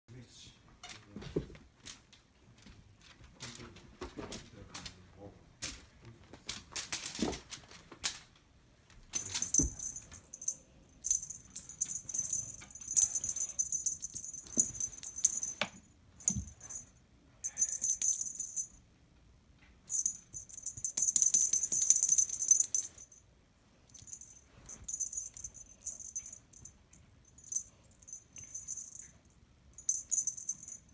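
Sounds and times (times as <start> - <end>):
cat toy crinkly jingling: 9.1 - 18.8, 19.9 - 23.2, 23.9 - 29.2.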